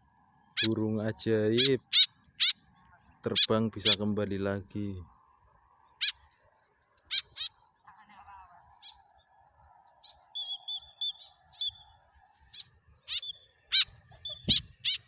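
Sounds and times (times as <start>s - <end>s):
bird giving sharp calls: 1.5s - 2.7s, 5.9s - 6.2s, 7.1s - 7.6s, 12.5s - 15.0s
high whistled bird notes: 10.0s - 12.0s.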